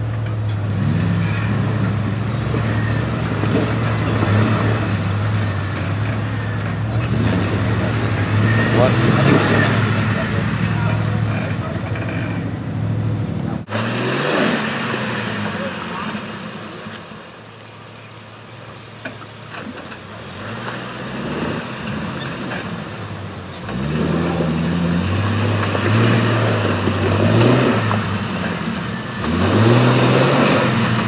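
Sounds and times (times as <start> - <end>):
off-road engine revving: 0.0 - 31.0.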